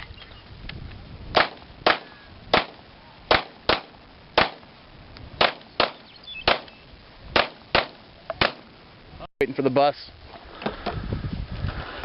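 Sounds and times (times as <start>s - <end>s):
pistol shots: 1.4s - 4.6s, 5.4s - 6.7s, 7.4s - 8.6s.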